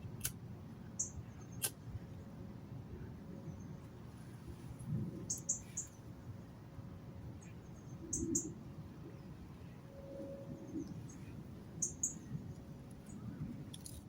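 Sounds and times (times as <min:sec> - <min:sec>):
small birds chirping: 0:00.9 - 0:01.8, 0:05.2 - 0:06.1, 0:10.6 - 0:13.9.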